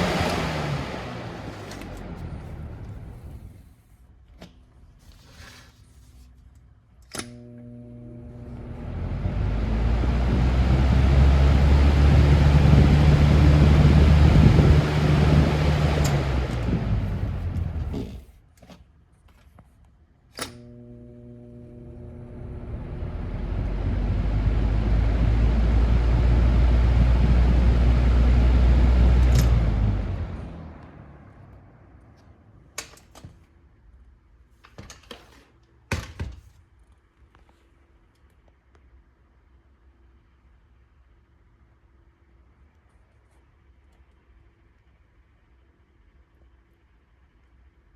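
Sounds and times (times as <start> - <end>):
box fan motor hum: 0.0 - 3.6, 7.2 - 18.4, 20.5 - 31.3.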